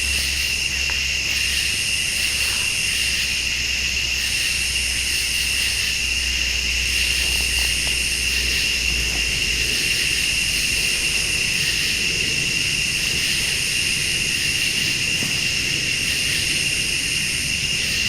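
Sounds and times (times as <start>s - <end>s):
crickets and insects trilling: 0.0s - 18.0s
low rumble: 5.7s - 17.8s.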